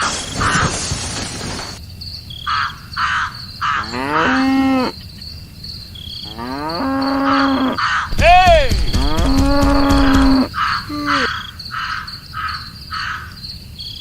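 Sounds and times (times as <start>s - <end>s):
cricket chirps: 0.0s - 14.0s
cow mooing: 3.8s - 5.0s, 6.2s - 7.8s, 9.0s - 11.3s
short harsh calls: 7.8s - 11.5s.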